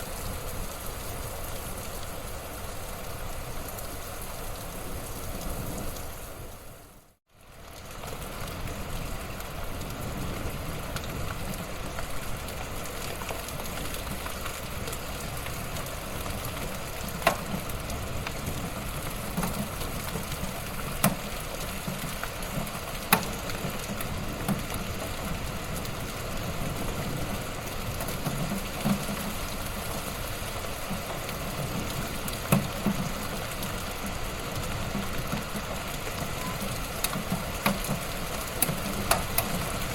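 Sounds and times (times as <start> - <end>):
wood fire crackling: 0.0 - 39.9
burning wood popping: 16.3 - 25.2, 27.5 - 39.9.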